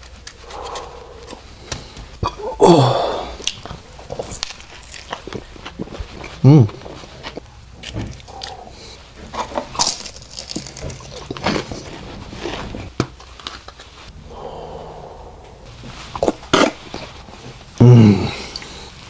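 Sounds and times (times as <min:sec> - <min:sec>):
chewing and crunching: 0:00.0 - 0:02.5, 0:03.4 - 0:14.0
breathing: 0:00.4 - 0:02.2, 0:14.2 - 0:15.7.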